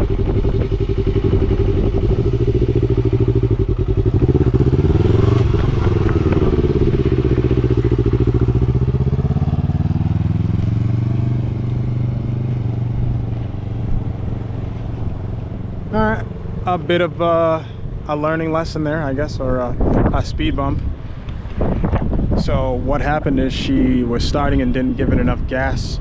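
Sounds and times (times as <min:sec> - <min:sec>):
motorcycle engine revving: 0:00.0 - 0:19.2.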